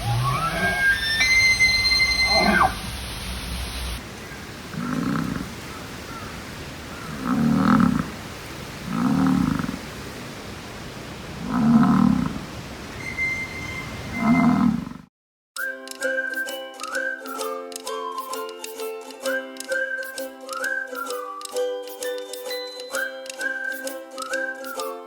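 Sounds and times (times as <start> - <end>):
bison bull bellowing: 0.0 - 2.9, 14.1 - 15.0.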